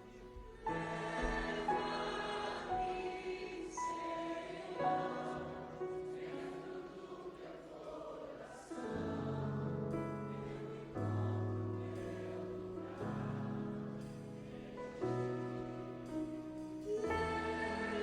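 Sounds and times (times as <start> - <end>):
person singing worship song: 0.0 - 18.0
held keyboard chords: 8.9 - 18.0.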